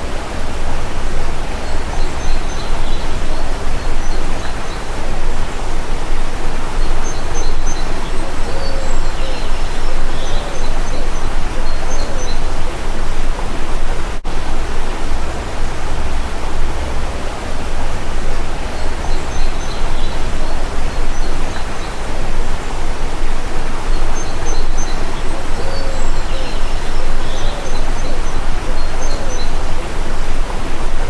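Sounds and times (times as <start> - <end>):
rushing running water: 0.0 - 31.0.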